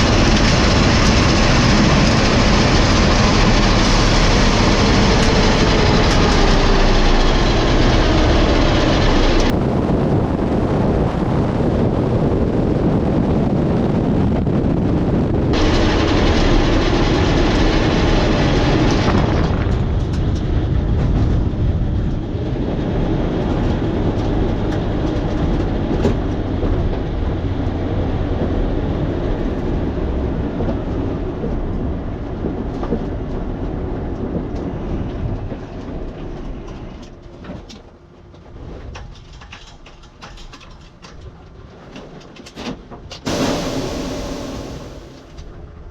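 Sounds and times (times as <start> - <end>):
race car engine rumble: 0.0 - 35.4, 43.2 - 45.4.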